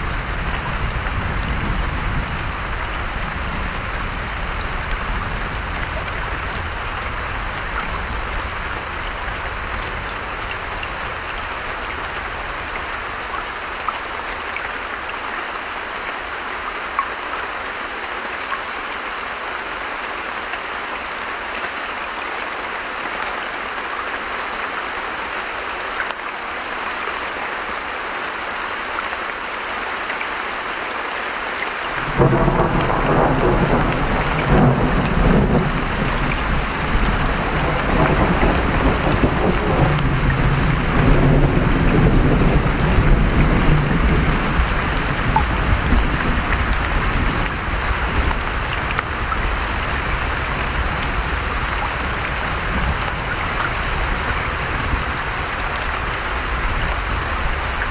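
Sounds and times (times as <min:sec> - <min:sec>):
heavy rain: 0:00.0 - 0:57.9
thunder clap and rumble: 0:32.0 - 0:55.2.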